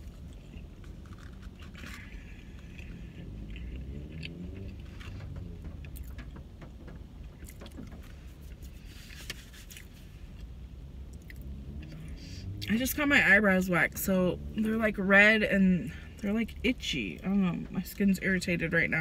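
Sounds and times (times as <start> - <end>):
chewing fries with mouth clicks: 0.0 - 5.2
low car cabin rumble: 0.0 - 19.0.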